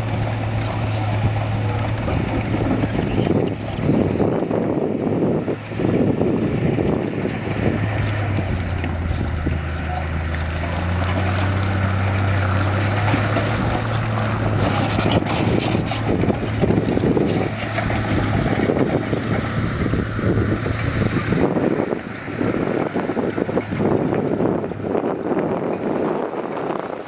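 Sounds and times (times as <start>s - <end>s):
diesel machinery engine hum: 0.0s - 27.0s
clattering and crunching: 7.1s - 21.4s.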